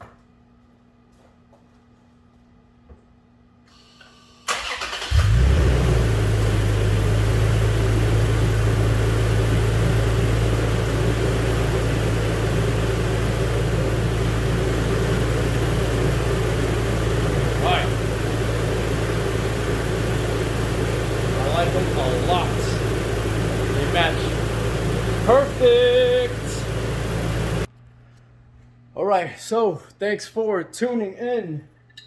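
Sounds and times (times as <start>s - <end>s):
engine starter cranking: 4.5s - 5.6s
pickup engine idling: 5.0s - 27.7s.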